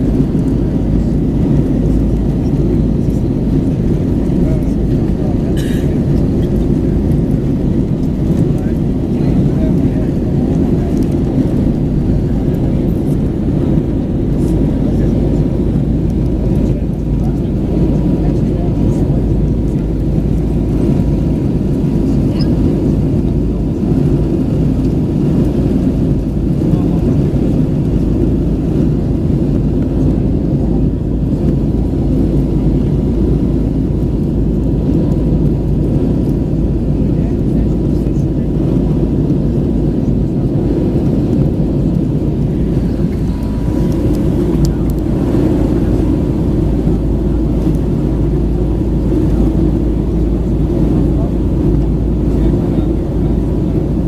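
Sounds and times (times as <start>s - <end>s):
aircraft cabin engine rumble: 0.0s - 54.0s.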